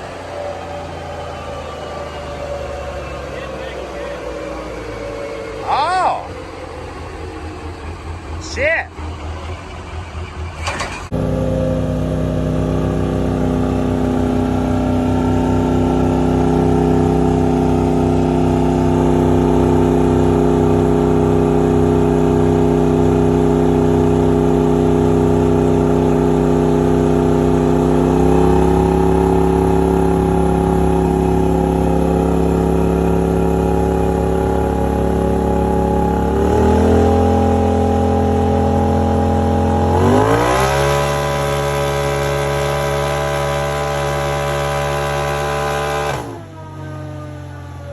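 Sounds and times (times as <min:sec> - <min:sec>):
truck engine revving high: 0:00.0 - 0:47.9.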